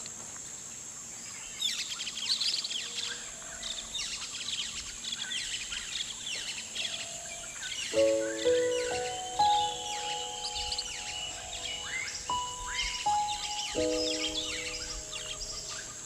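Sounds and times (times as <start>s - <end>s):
birds chirping: 7.7s - 16.0s
high-pitched insect drone: 8.0s - 16.0s.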